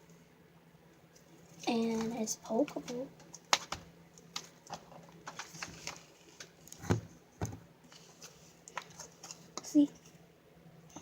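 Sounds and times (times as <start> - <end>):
slime crackling and popping: 2.7 - 6.8.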